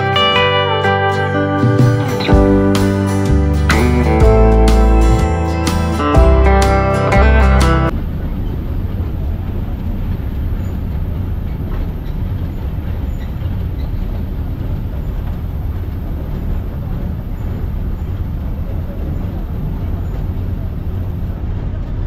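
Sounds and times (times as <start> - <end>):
train carriage rumbling: 7.9 - 22.0.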